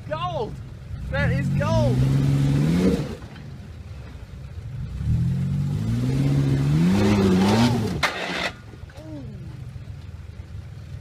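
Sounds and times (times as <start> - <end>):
engine revving hard: 1.0 - 3.2, 4.8 - 8.6.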